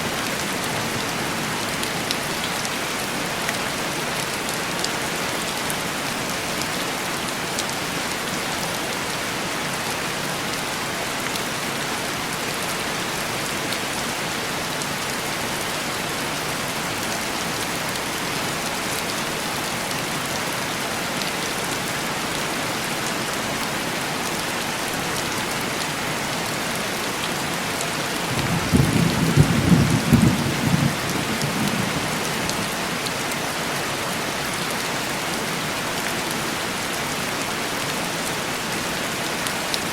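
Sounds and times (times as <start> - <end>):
heavy rain on window glass: 25.8 - 34.2
thunder rumbling: 28.3 - 32.2.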